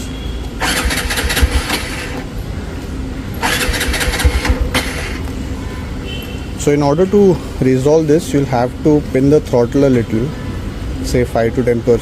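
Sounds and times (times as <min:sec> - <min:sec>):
motorcycle engine cranking: 0:00.6 - 0:02.3, 0:03.4 - 0:05.2.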